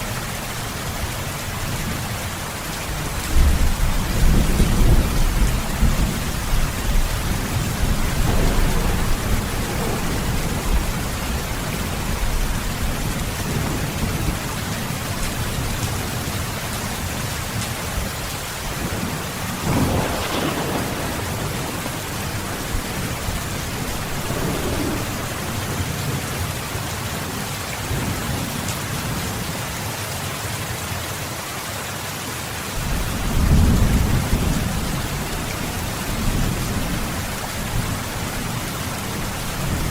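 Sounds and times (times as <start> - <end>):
heavy rain: 0.0 - 39.9
rolling thunder: 3.2 - 16.3, 17.9 - 26.6, 32.8 - 39.9.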